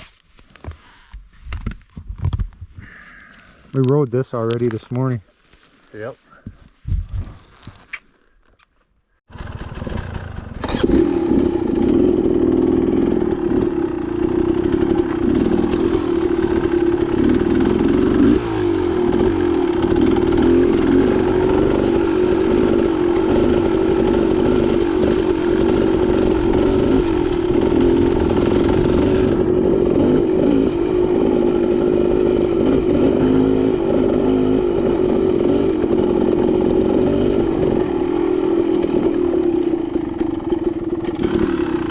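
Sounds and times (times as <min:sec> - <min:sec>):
dirt bike engine running: 0:09.3 - 0:41.9.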